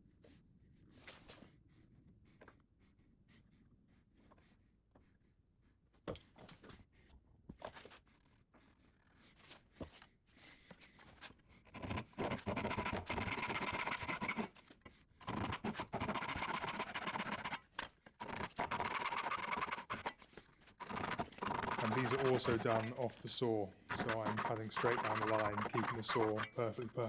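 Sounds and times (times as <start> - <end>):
hand saw cutting wood: 10.6 - 27.0.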